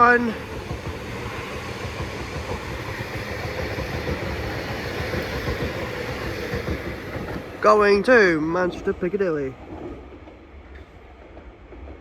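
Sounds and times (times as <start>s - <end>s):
electric train pulling away: 0.0s - 9.0s.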